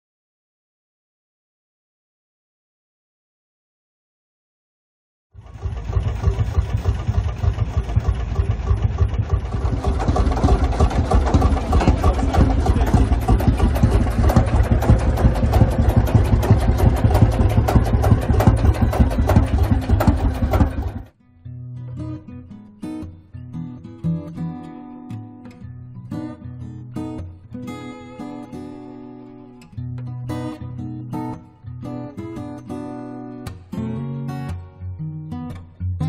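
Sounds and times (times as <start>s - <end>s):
tractor engine knocking: 5.4s - 21.1s.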